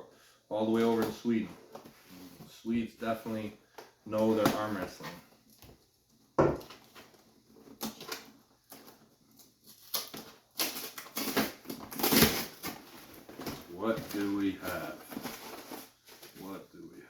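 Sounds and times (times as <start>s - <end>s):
packaging rustling: 6.6s - 16.6s.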